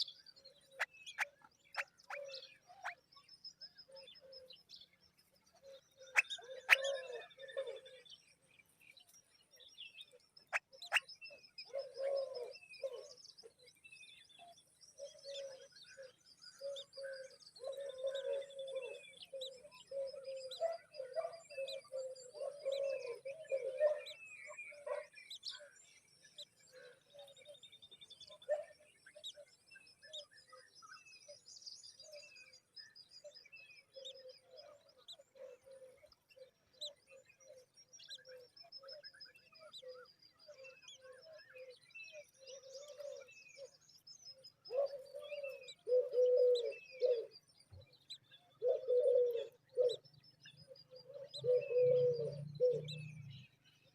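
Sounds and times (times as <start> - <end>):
high bird chirps and trills: 0.0 - 4.5, 5.5 - 7.8, 10.4 - 12.6.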